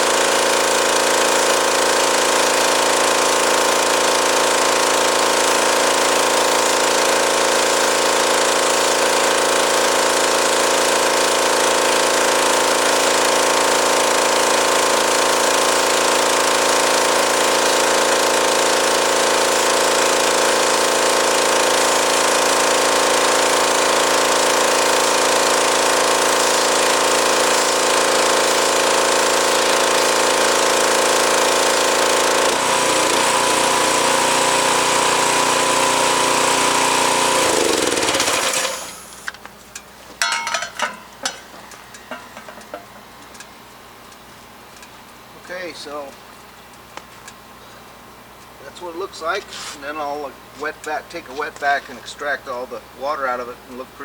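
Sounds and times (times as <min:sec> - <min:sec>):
water jet spraying a mat: 0:00.0 - 0:39.2, 0:48.8 - 0:49.9
pressure washer running: 0:00.0 - 0:54.0.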